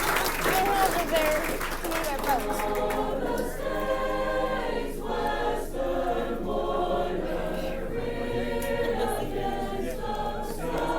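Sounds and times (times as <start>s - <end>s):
choir singing in harmony: 2.4s - 10.9s.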